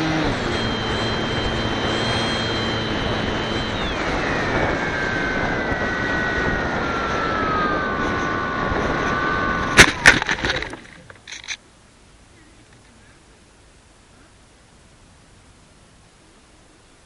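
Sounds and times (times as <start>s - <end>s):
electric motor whining: 0.0s - 11.1s
plane hitting the ground: 0.0s - 11.3s
wind rush: 0.1s - 10.9s.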